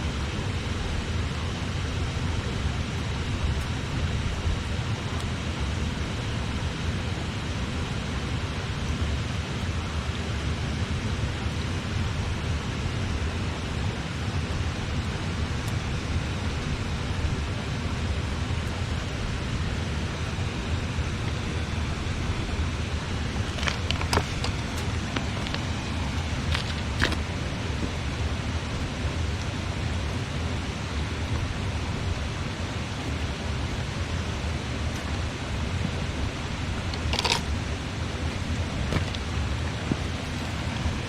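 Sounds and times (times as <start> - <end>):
river water rushing: 11.0 - 41.0
campfire crackling and popping: 23.0 - 41.0.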